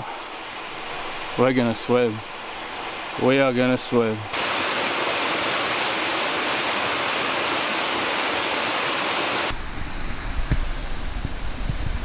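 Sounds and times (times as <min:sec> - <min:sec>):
large waterfall rushing: 0:00.0 - 0:09.6
wind buffeting microphone: 0:09.4 - 0:12.0.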